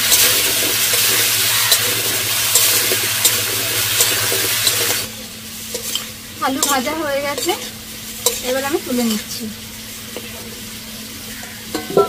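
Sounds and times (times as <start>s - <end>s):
ladle stirring and tapping pan: 0.0s - 5.1s, 5.7s - 9.2s, 11.7s - 12.0s
potatoes sizzling in hot oil: 0.0s - 12.0s.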